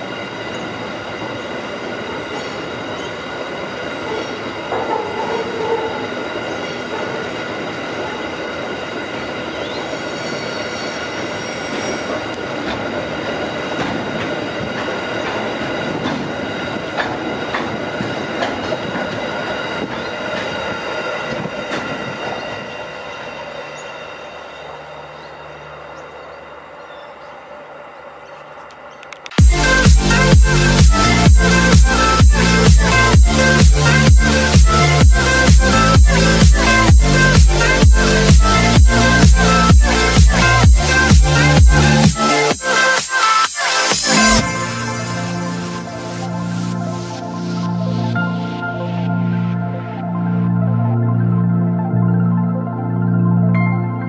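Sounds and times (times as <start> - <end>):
high-pitched wheel squeal: 0.0 - 12.4, 15.0 - 29.2
wheels clicking over track: 25.9 - 29.8.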